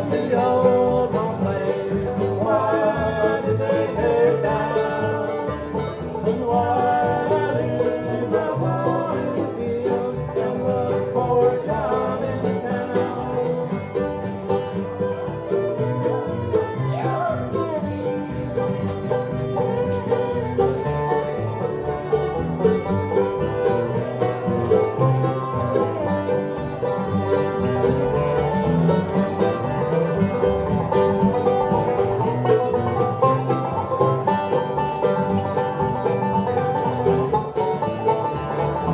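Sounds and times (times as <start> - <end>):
banjo picking: 0.0 - 38.9
bluegrass band playing: 0.0 - 38.9
guitar strumming: 0.0 - 38.9.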